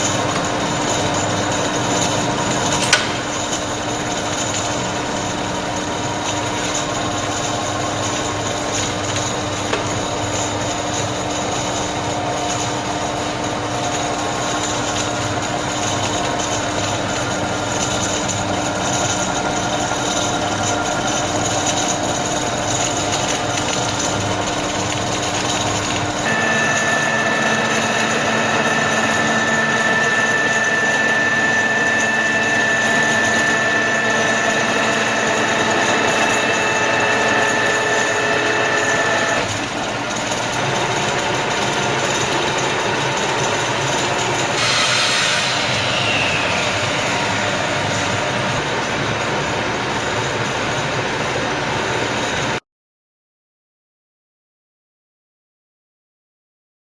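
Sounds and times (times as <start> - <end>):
drilling machine gear whir: 0.0 - 52.6
high whine: 26.1 - 40.2, 44.2 - 50.6.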